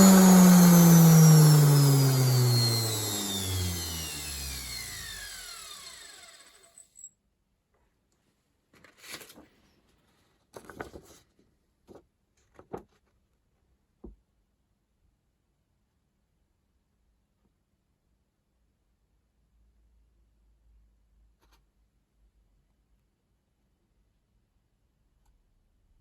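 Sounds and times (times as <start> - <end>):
washing machine motor whine: 0.0 - 6.8.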